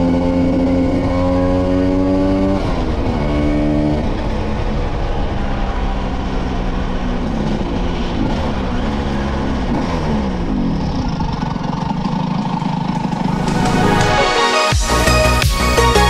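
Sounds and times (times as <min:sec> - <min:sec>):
moped engines running: 0:04.0 - 0:15.5.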